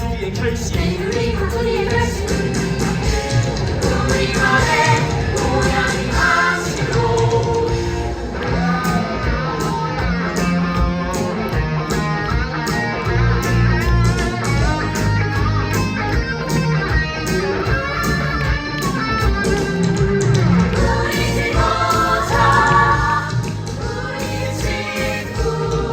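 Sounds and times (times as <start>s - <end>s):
instrumental rock band music: 0.0s - 25.9s.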